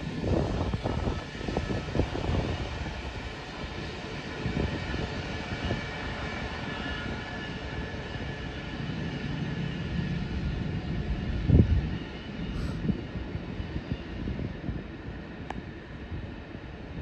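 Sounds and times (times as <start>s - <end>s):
freight train rumbling on track: 0.0s - 17.0s.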